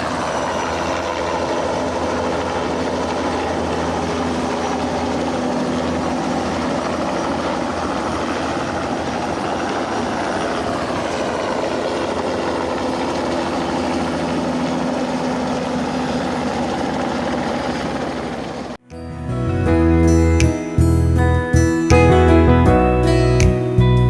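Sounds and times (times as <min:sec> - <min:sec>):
helicopter engine and rotor drone: 0:00.0 - 0:18.8.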